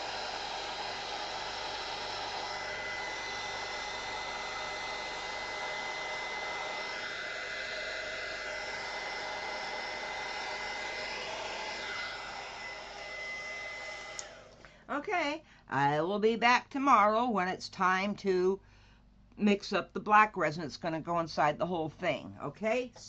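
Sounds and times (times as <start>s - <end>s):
heat gun fan blowing: 0.0s - 14.7s.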